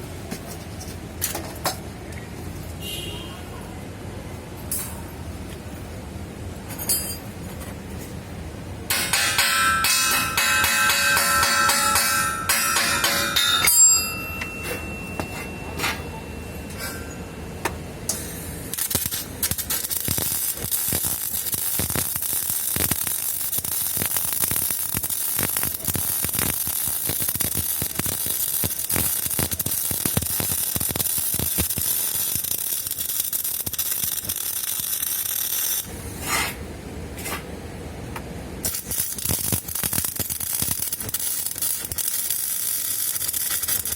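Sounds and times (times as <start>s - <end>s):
welding arc crackling sizzle: 18.1s - 36.6s, 38.6s - 43.9s.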